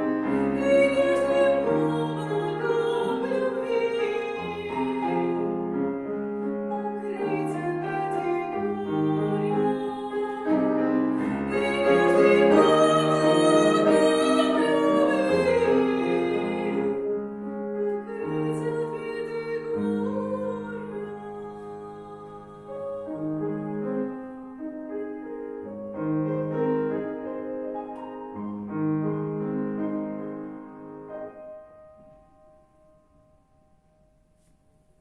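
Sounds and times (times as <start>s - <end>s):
piano accompaniment: 0.0s - 35.0s
woman singing operatically: 0.3s - 5.4s, 6.8s - 17.0s, 18.1s - 23.1s.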